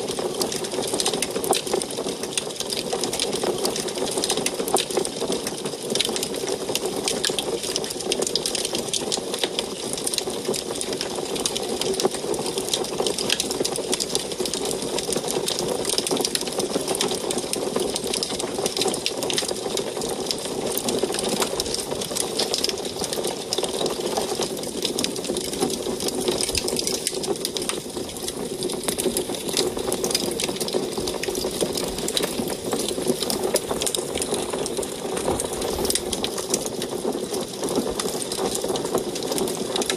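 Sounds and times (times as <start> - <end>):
wood fire crackling and popping: 0.0 - 39.9
flames rushing: 20.5 - 38.7.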